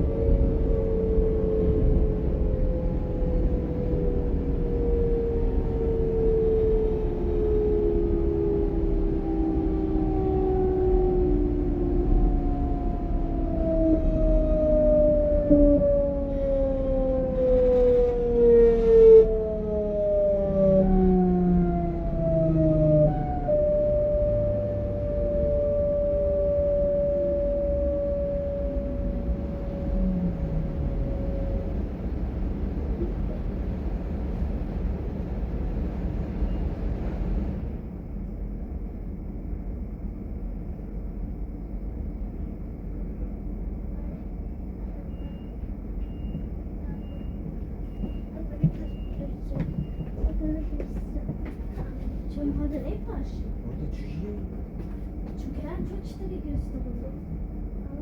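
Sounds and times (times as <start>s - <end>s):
train wheels rumbling: 0.0s - 19.1s, 20.9s - 38.0s, 42.0s - 58.0s
traction motor whine: 0.0s - 33.2s
second higher whine: 0.0s - 33.5s.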